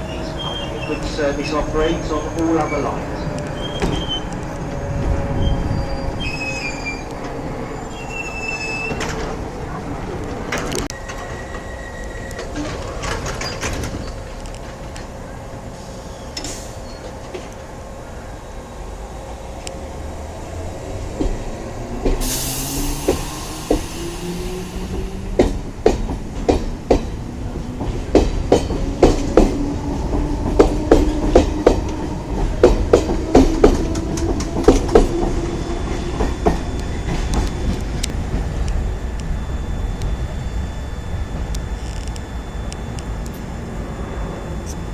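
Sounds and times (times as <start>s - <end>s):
train motor whine: 18.7s - 44.9s
air hiss: 22.1s - 25.2s.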